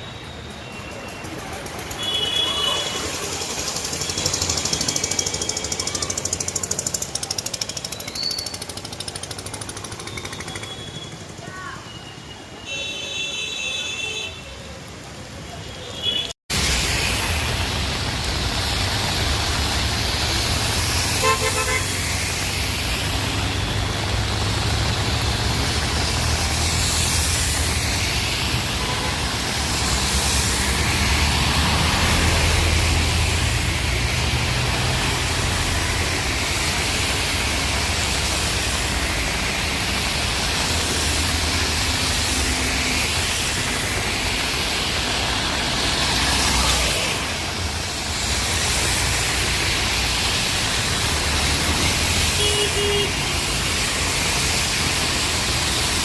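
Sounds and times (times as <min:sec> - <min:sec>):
traffic on wet street: 0:00.0 - 0:56.0
car horn: 0:02.0 - 0:03.1, 0:21.2 - 0:21.9, 0:52.3 - 0:53.3.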